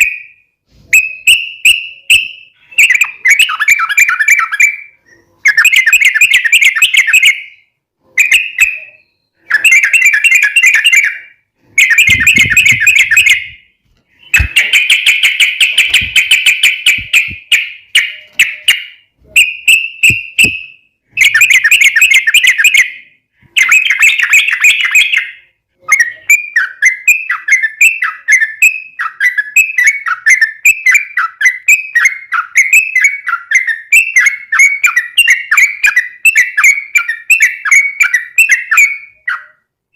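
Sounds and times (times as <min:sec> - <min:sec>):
bird singing chattering bursts: 0:11.8 - 0:13.6, 0:14.2 - 0:22.9.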